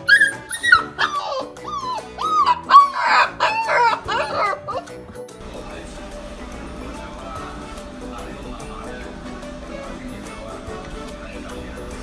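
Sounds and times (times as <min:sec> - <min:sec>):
husky howling: 0:00.0 - 0:05.0
background music: 0:00.0 - 0:12.0.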